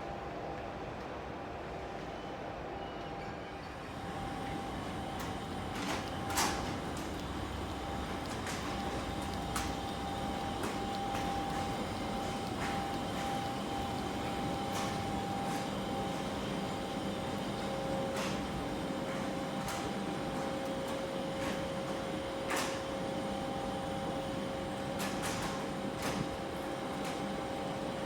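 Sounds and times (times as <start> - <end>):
train equipment humming: 3.9 - 24.9.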